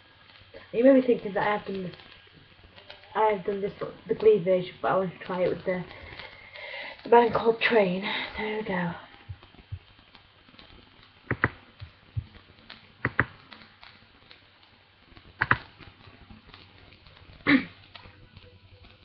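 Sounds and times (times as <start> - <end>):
faint clicks and taps: 9.2 - 19.0.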